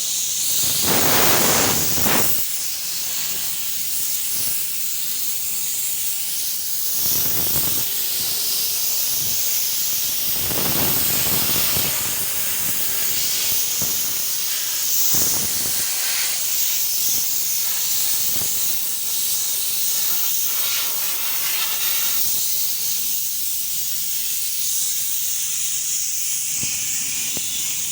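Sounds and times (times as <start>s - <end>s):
paint spray hissing: 0.0s - 27.9s.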